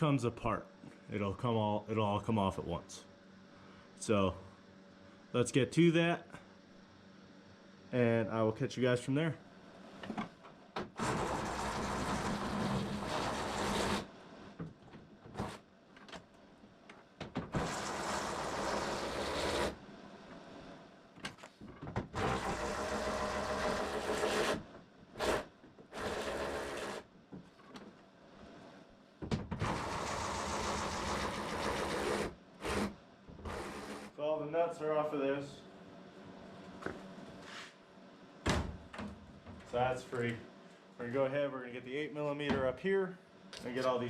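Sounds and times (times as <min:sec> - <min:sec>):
cordless power tool running: 0:22.2 - 0:24.6, 0:25.2 - 0:27.0.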